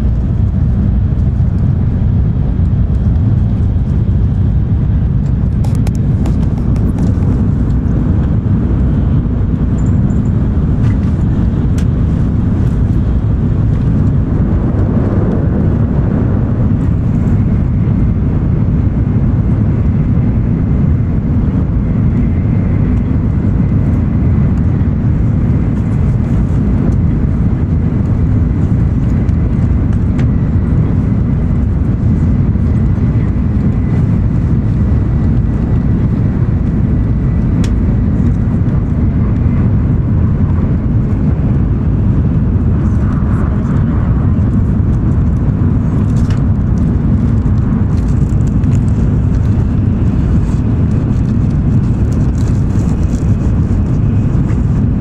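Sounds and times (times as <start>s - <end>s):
train running low rumble: 0.0s - 55.0s.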